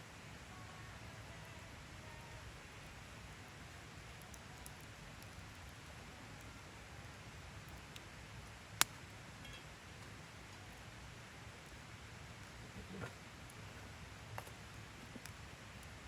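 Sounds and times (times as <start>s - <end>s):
fire hissing: 2.8s - 16.0s
fire crackling pop: 7.6s - 10.8s, 12.4s - 16.0s.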